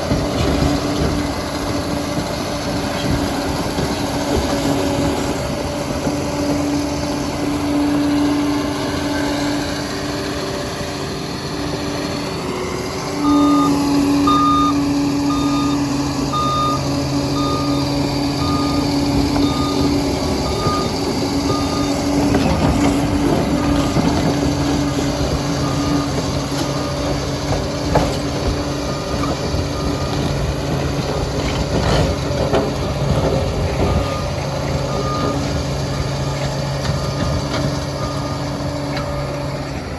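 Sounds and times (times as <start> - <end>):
diesel engine running: 0.0 - 39.9
reversing alarm beeping: 13.1 - 31.0, 32.0 - 39.8.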